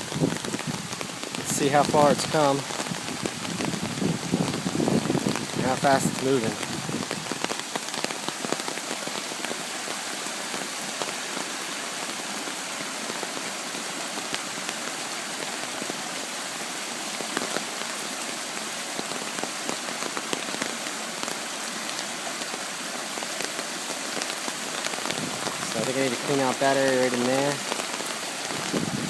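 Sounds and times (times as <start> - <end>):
floodwater hissing: 0.0 - 29.0.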